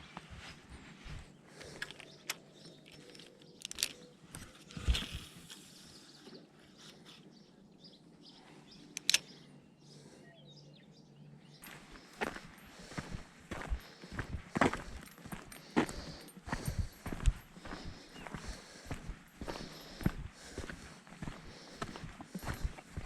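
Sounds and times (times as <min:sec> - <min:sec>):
faint bird chirps: 0:00.9 - 0:12.6.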